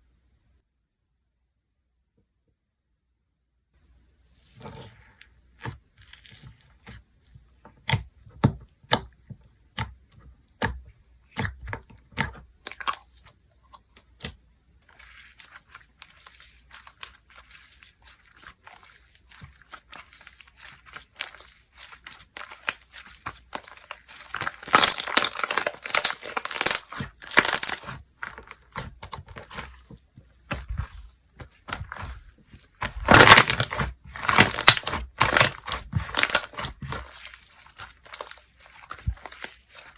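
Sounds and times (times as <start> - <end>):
slime squishing and popping: 7.8 - 39.9.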